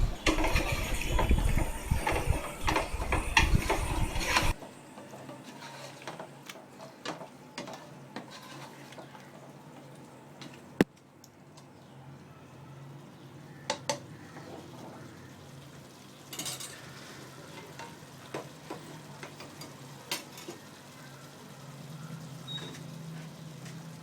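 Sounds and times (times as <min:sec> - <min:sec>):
spoon scraping a metal pot: 0:00.0 - 0:04.6, 0:05.4 - 0:09.1
gentle sizzle: 0:00.0 - 0:24.0.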